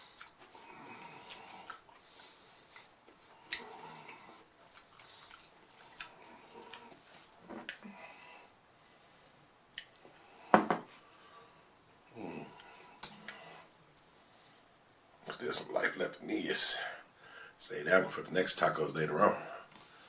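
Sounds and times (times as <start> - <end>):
wet chewing: 1.1 - 2.9, 3.5 - 7.0.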